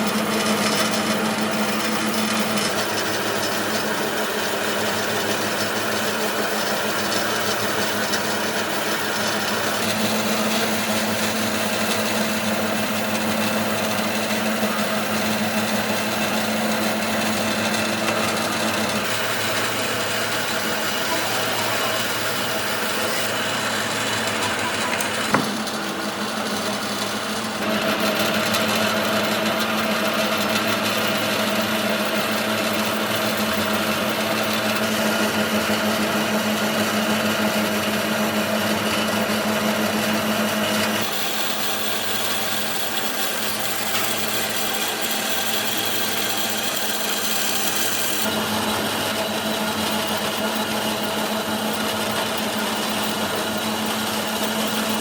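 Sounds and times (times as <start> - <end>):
woodworking power tool running: 0.0 - 55.0
sharp knock: 25.2 - 25.7.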